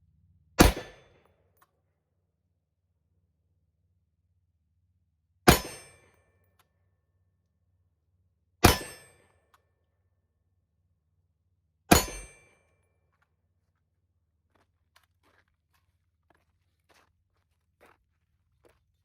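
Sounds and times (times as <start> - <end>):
rifle shots: 0.6 - 1.1.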